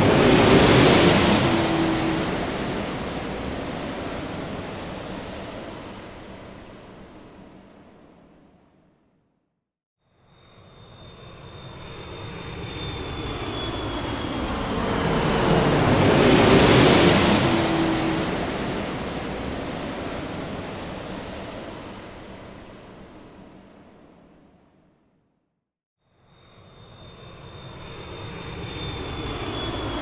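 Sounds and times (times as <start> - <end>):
airplane passing overhead: 0.0 - 7.6, 10.4 - 23.6, 26.4 - 30.0.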